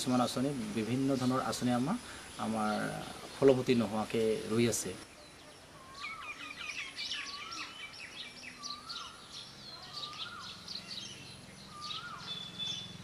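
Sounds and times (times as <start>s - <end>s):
chatter of high bird chirps: 5.1s - 13.0s.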